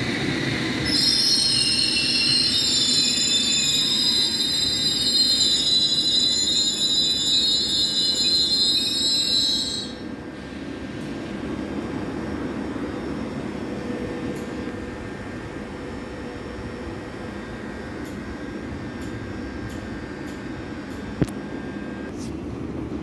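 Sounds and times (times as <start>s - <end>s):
low hum of standing train: 0.0s - 23.0s
train brakes squealing: 0.1s - 11.3s.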